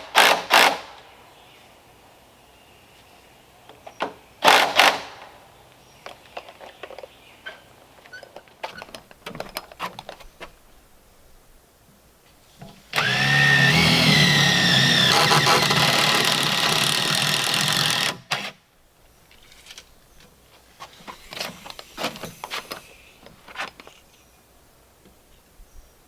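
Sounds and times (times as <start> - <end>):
electric power tool motor: 13.0 - 18.5.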